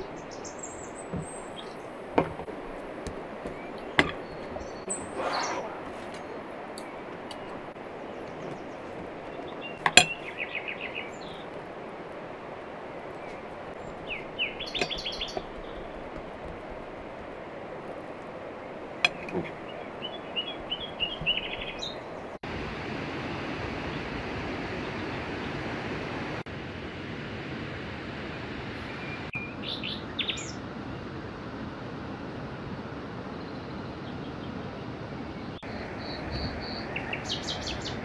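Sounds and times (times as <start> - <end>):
small birds chirping: 0.0 - 22.4, 28.8 - 30.6, 33.3 - 38.0
steady background hiss: 0.0 - 34.0.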